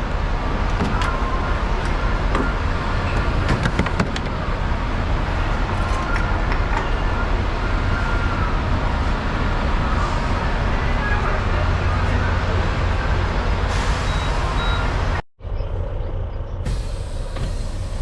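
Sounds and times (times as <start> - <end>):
truck diesel engine running: 4.4 - 10.9, 11.6 - 15.2, 16.6 - 18.0.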